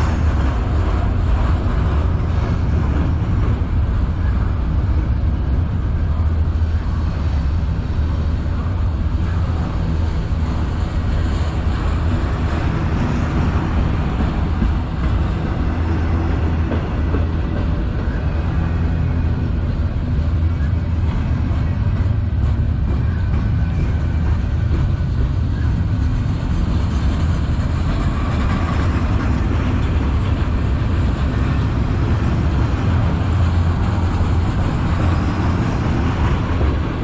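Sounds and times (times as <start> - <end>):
freight train rumbling past: 0.0 - 37.0.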